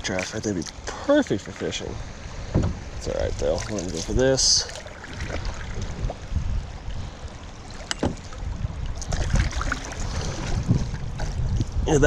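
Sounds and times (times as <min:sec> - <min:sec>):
water splashing around hull: 0:00.0 - 0:12.0
kayak paddle strokes: 0:06.9 - 0:11.8.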